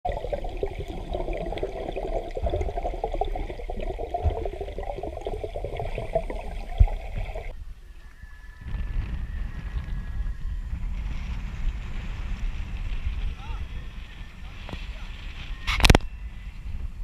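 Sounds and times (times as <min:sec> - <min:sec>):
dense crackle: 0:00.0 - 0:07.5
water sloshing and bubbling: 0:00.0 - 0:07.6.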